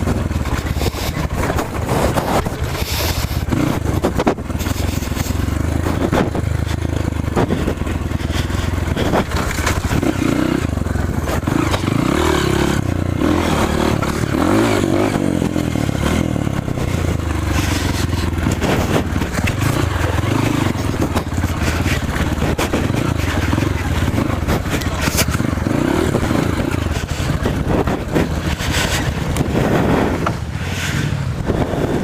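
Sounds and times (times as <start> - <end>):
knocks and rattles: 0.0 - 12.0, 12.6 - 30.4
motorcycle engine revving: 0.0 - 32.0.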